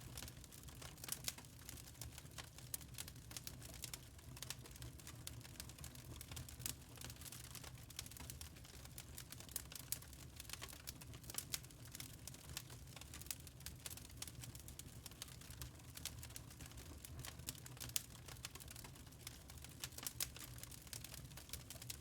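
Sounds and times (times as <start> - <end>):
logs crackling and popping: 0.1 - 22.0.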